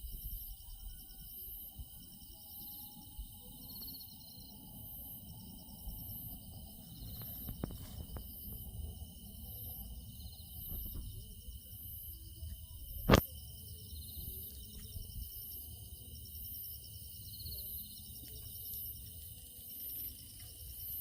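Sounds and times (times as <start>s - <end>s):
insects chirping: 0.0s - 21.0s
wind rumble on microphone: 5.4s - 11.7s, 14.2s - 15.5s.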